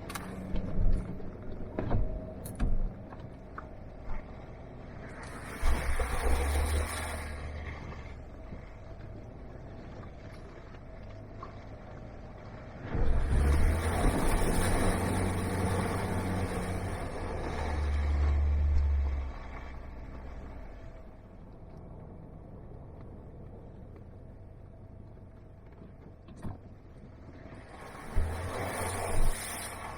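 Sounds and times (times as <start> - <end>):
vehicle engine pulling under load: 0.0 - 21.4, 27.4 - 29.9.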